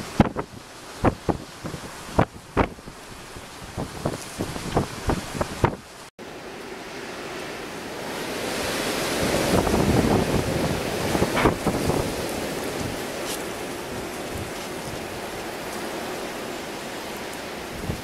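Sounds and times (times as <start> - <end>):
wind thumping on microphone: 0.0 - 6.1, 9.0 - 15.9, 17.7 - 18.0
blizzard wind roaring: 0.0 - 18.0
surf: 0.0 - 18.0.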